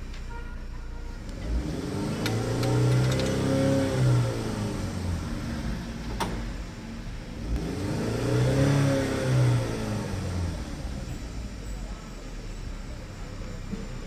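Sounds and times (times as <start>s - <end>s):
car engine revving: 1.0s - 13.8s.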